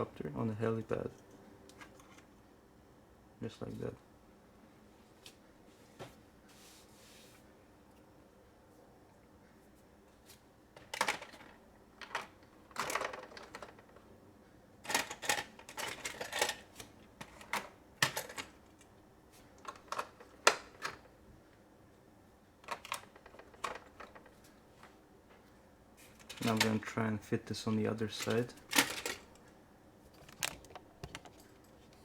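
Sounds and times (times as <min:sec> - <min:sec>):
plastic toy pieces clicking: 0:10.8 - 0:13.8, 0:14.9 - 0:16.6.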